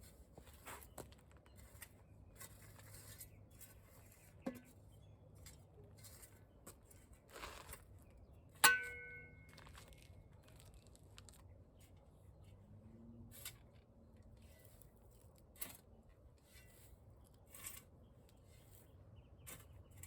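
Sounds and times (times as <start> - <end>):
faint handling and scraping: 0.0 - 20.0
sharp ringing clink: 8.6 - 9.5.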